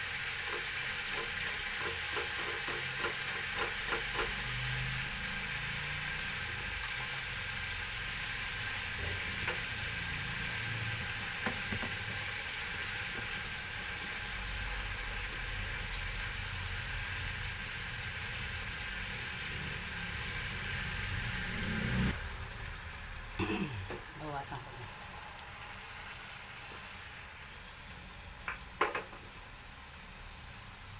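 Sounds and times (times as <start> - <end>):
liver sizzling in hot oil: 0.0 - 30.9.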